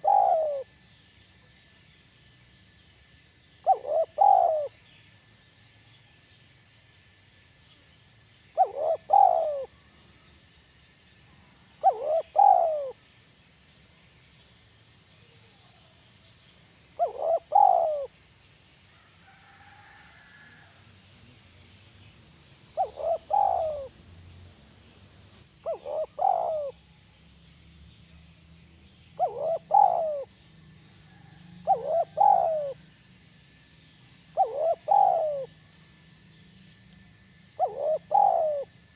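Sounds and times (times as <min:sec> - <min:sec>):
dove cooing: 0:00.0 - 0:00.7, 0:03.6 - 0:04.8, 0:08.6 - 0:09.7, 0:11.8 - 0:13.0, 0:17.0 - 0:18.1, 0:22.8 - 0:24.0, 0:25.6 - 0:26.8, 0:29.2 - 0:30.3, 0:31.6 - 0:32.8, 0:34.4 - 0:35.5, 0:37.6 - 0:38.7.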